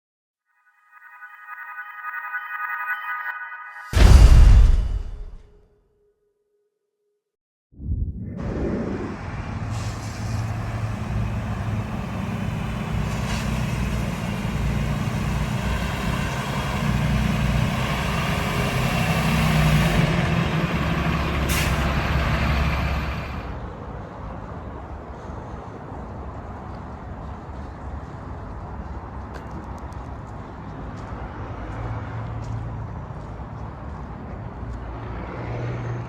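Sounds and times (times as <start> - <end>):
short sharp sound: 1.1 - 5.6
diesel truck engine running: 13.7 - 23.6.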